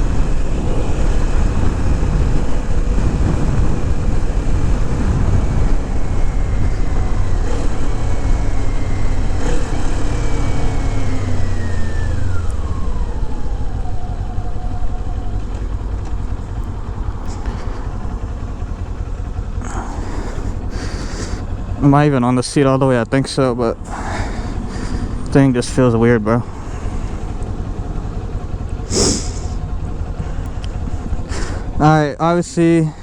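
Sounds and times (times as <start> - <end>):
wind rushing over microphone: 0.0 - 21.8
motorcycle engine running: 0.0 - 33.0.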